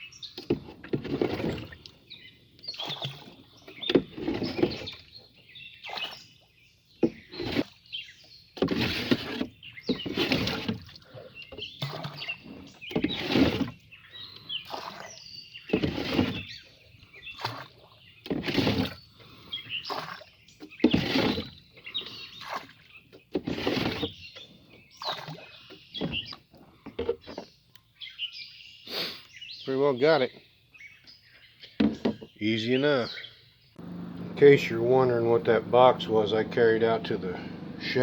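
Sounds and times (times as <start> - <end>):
water splashing over boat side: 2.6 - 5.2, 5.8 - 6.4, 8.6 - 13.8, 14.5 - 19.0, 19.8 - 26.4.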